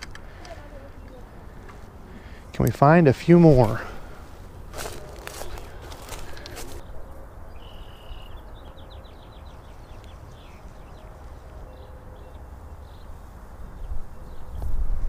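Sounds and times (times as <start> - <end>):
bird singing trills and chirps: 6.8 - 14.7
wind rumble on microphone: 13.1 - 15.0.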